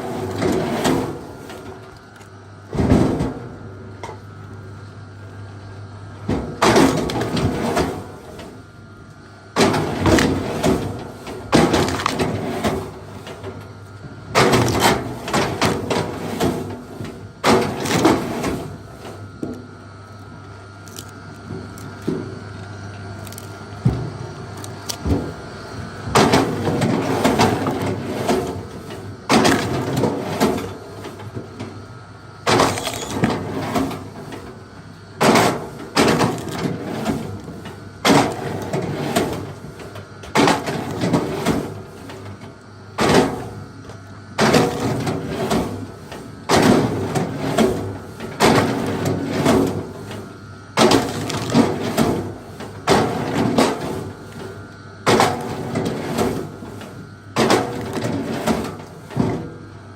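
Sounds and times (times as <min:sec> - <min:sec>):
wood splintering: 0:09.6 - 0:13.4, 0:14.3 - 0:16.7, 0:17.4 - 0:18.8, 0:20.8 - 0:22.2, 0:23.2 - 0:23.6, 0:26.2 - 0:30.7, 0:32.4 - 0:34.2, 0:35.2 - 0:39.6, 0:50.8 - 0:52.3.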